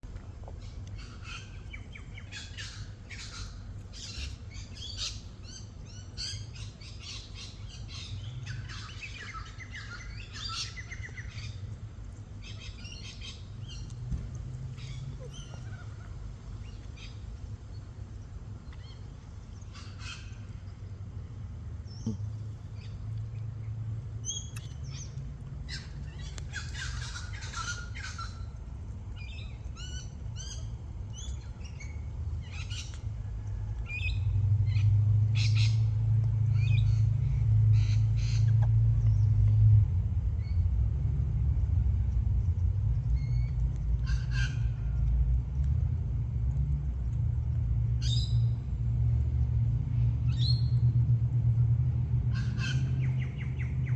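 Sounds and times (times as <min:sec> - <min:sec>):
low rumble: 0:00.0 - 0:53.9
parrots chirping and squawking: 0:24.2 - 0:33.1, 0:44.0 - 0:44.8.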